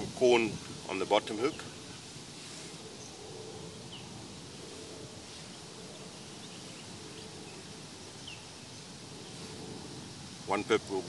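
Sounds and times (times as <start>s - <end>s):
outdoor background hiss: 0.0s - 11.0s
faint bird chirps: 2.6s - 9.7s.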